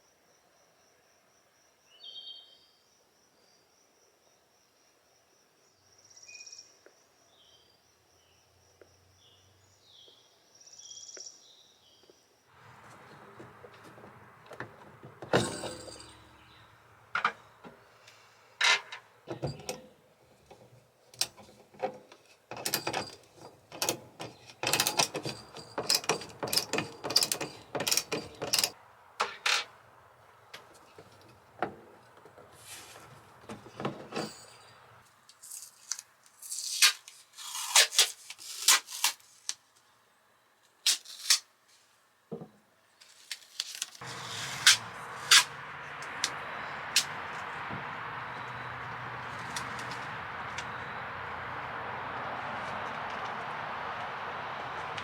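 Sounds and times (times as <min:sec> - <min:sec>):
sharp knocks and clatter: 0:12.7 - 0:16.5, 0:17.1 - 0:17.8, 0:20.5 - 0:29.7
crickets chirping: 0:44.0 - 0:55.0
bird chirps: 0:45.8 - 0:52.2.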